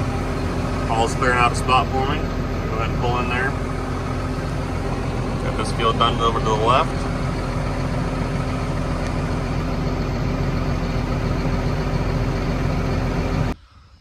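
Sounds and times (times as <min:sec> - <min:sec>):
vehicle engine humming steadily: 0:00.0 - 0:13.6.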